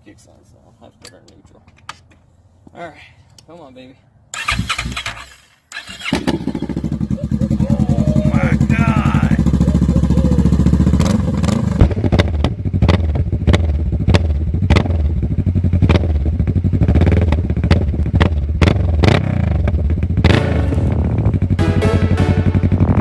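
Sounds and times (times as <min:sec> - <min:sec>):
motorcycle engine exhaust note: 0:07.7 - 0:12.0, 0:20.2 - 0:23.0.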